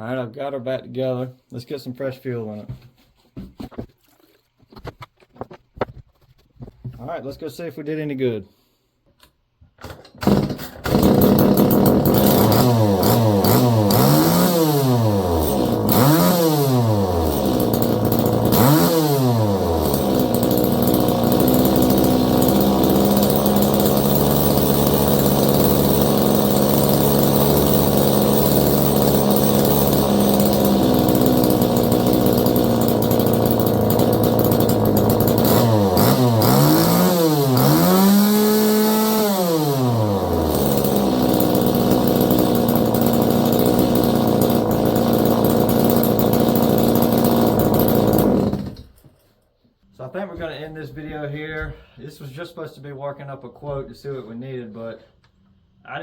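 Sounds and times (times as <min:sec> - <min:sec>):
chainsaw engine revving: 0:10.2 - 0:48.9.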